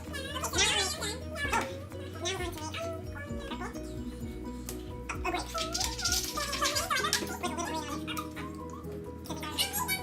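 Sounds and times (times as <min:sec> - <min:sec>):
background music sustained notes: 0:00.0 - 0:10.0.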